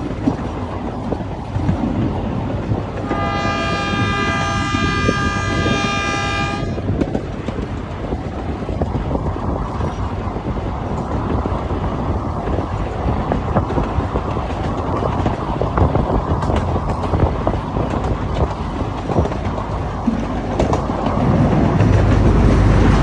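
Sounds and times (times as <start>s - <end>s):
miniature train rumbling and rattling: 0.0s - 23.0s
train horn blast: 3.0s - 7.0s.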